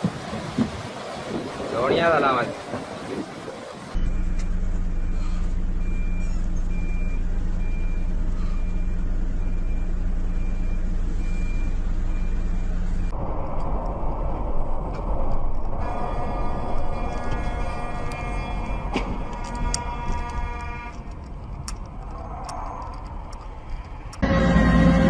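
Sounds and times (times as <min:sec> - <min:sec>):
diesel engine running: 0:03.9 - 0:25.0
reversing alarm beeping: 0:04.0 - 0:13.2
rough machine noise: 0:13.2 - 0:25.0.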